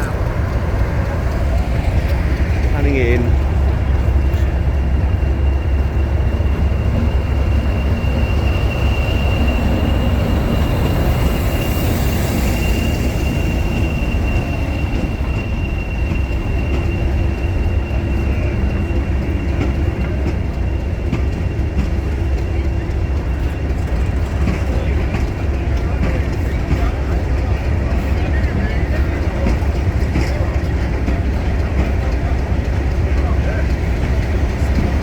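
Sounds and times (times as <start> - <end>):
train rumbling: 0.0 - 35.0
high-pitched wheel squeal: 4.4 - 19.9.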